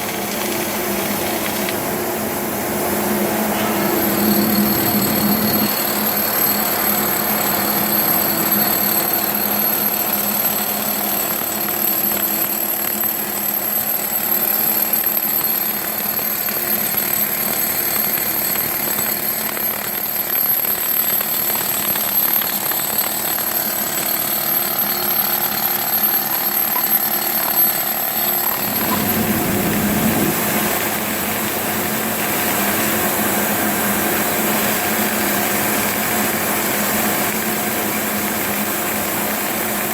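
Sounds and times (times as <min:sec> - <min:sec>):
industrial machine hum: 0:00.0 - 0:13.4, 0:22.4 - 0:39.9
high machine whine: 0:00.0 - 0:39.9.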